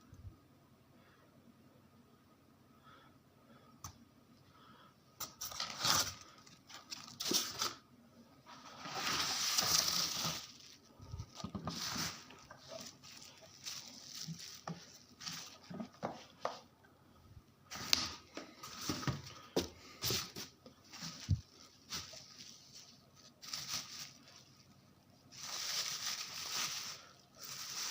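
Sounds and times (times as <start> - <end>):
packaging tearing: 5.2 - 7.8
plastic wrap and cardboard crinkling: 5.2 - 7.8, 8.5 - 16.7, 17.7 - 27.9.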